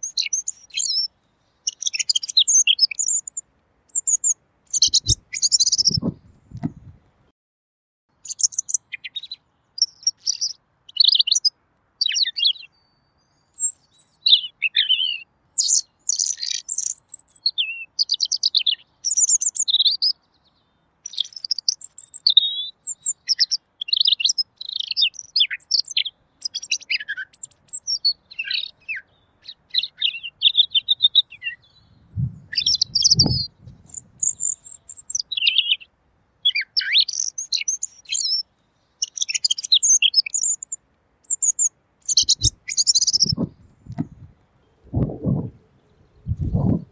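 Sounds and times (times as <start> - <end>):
bird singing warbled phrases: 0.0 - 6.9, 8.1 - 46.9
low thumps: 6.0 - 7.0, 32.1 - 32.6, 43.2 - 45.6, 46.2 - 46.9.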